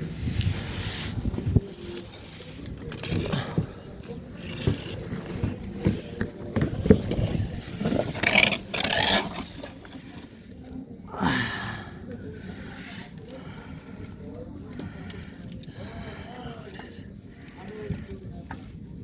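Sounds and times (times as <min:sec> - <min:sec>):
scraping under a car: 0:00.0 - 0:10.9.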